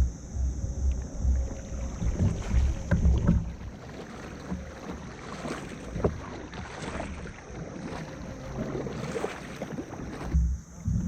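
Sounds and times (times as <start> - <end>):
water noise: 0.0 - 11.0
wind buffeting microphone: 0.0 - 11.0
knocks against a kayak: 0.9 - 6.9.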